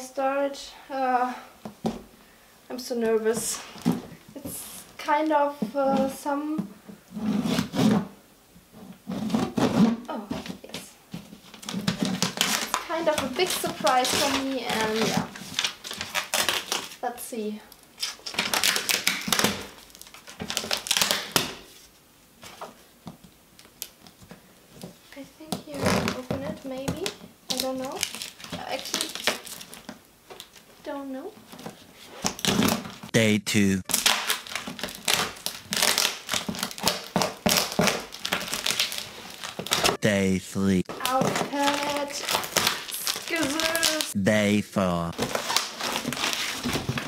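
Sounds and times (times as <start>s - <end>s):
parcel packaging crackling: 10.7s - 17.0s, 17.7s - 21.7s, 25.7s - 30.8s, 33.9s - 40.0s, 40.9s - 44.2s, 45.2s - 47.0s.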